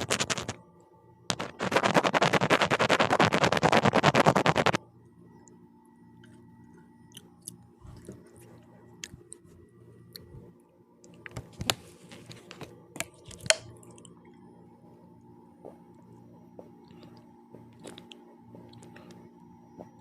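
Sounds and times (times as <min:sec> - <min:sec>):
person chewing food: 0:06.2 - 0:09.5, 0:10.1 - 0:10.3, 0:13.0 - 0:14.3, 0:15.6 - 0:19.2.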